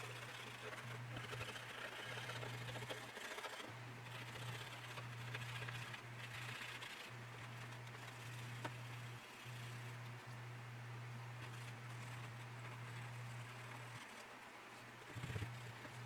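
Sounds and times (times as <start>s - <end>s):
rubbing on plastic model: 0.0s - 10.0s, 11.4s - 16.0s
low electrical hum: 0.0s - 16.0s.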